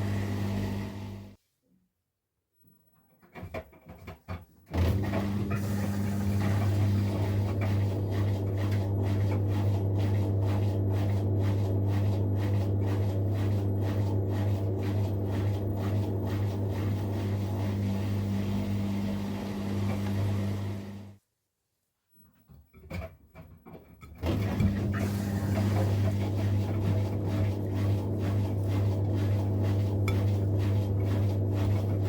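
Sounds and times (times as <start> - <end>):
washing machine spinning: 0.0 - 1.4, 4.7 - 21.1, 24.2 - 32.0.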